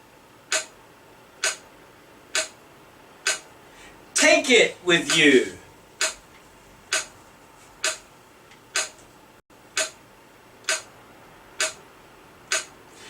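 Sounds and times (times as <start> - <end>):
sharp percussive clicks: 0.5 - 0.8, 1.4 - 1.6, 2.3 - 2.6, 3.2 - 3.5, 6.0 - 6.2, 6.9 - 7.1, 7.8 - 9.0, 9.8 - 10.0, 10.6 - 10.9, 11.6 - 11.8, 12.5 - 12.8
person speaking: 4.1 - 5.7.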